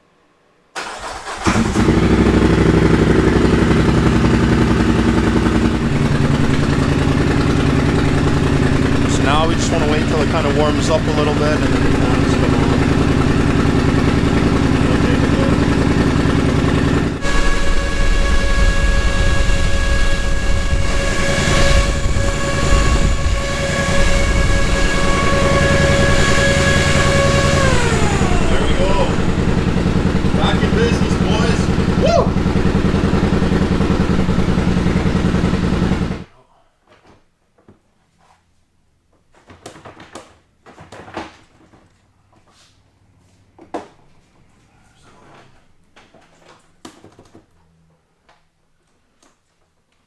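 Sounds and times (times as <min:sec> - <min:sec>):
engine running at fast idle: 0:00.8 - 0:36.3
engine starter cranking: 0:00.8 - 0:36.3
radiator fan whine: 0:05.2 - 0:36.2.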